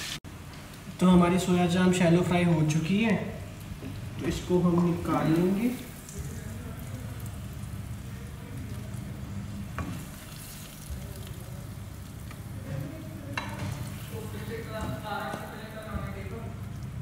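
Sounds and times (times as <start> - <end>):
food sizzling in oil: 0.0 - 0.4, 2.5 - 17.0.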